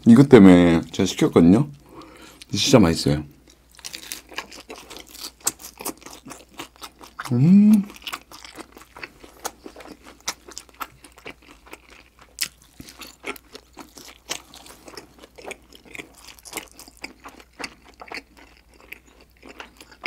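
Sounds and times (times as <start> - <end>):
mouth chewing clicks and smacks: 4.2 - 20.0.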